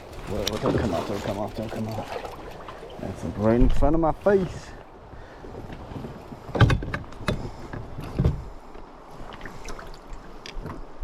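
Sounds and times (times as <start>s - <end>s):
splashes and knocks at the water: 0.0s - 3.8s.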